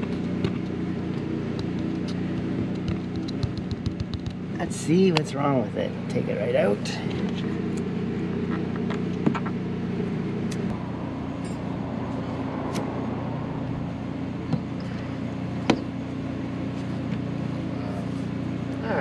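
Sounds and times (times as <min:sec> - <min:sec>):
sharp clicks and knocks: 0:00.0 - 0:04.5
car engine idling: 0:00.0 - 0:19.0.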